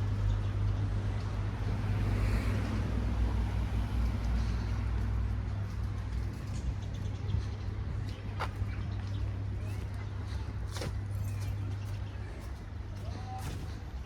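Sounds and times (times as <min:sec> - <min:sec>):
vehicle passing by: 0:00.0 - 0:07.4
traffic rumble: 0:00.0 - 0:14.0.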